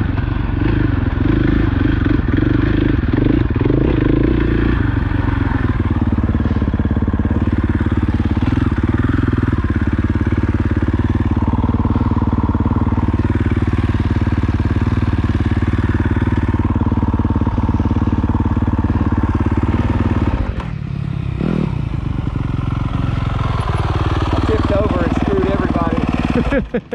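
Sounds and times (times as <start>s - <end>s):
motorcycle engine revving: 0.0s - 26.9s.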